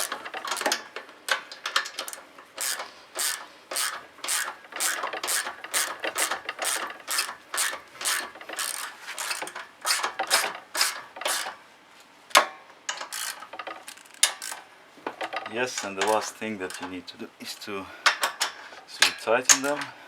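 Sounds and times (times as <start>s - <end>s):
ratchet wrench clicking: 0.0s - 0.8s, 1.7s - 11.6s, 12.9s - 14.6s.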